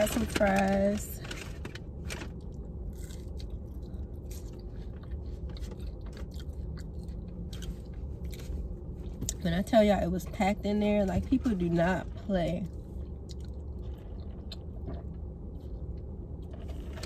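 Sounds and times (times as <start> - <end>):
car interior rumble: 0.0 - 17.0
chewing french fries: 1.3 - 9.3, 12.7 - 17.0.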